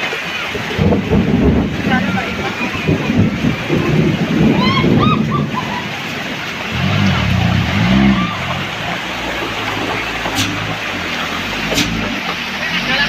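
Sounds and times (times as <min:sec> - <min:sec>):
truck diesel engine revving: 0:06.5 - 0:13.0.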